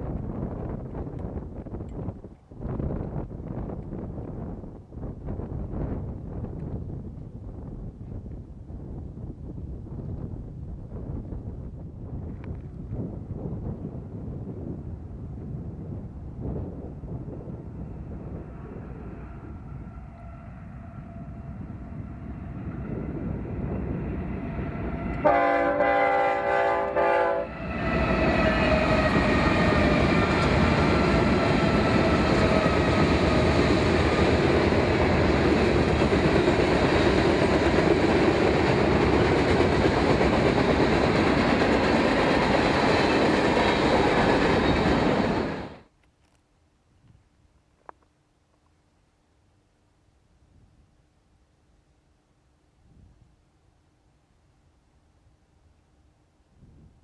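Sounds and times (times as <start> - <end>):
train rumbling past: 0.0 - 45.9
train horn chord: 19.2 - 22.6, 24.8 - 30.6.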